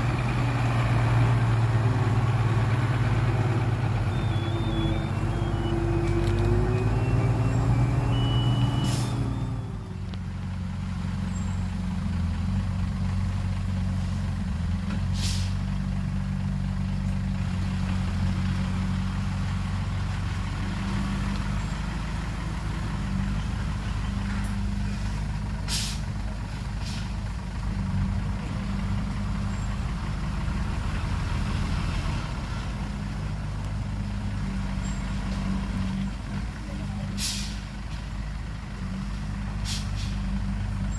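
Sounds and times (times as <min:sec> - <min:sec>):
diesel truck engine running: 0:00.0 - 0:40.9
air brake hisses: 0:08.8 - 0:09.3, 0:15.1 - 0:15.6, 0:25.7 - 0:26.1, 0:26.8 - 0:27.2, 0:37.2 - 0:37.7, 0:39.6 - 0:40.3.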